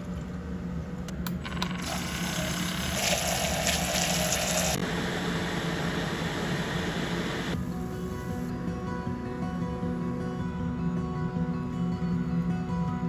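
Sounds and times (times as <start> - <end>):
water running: 1.7 - 4.8.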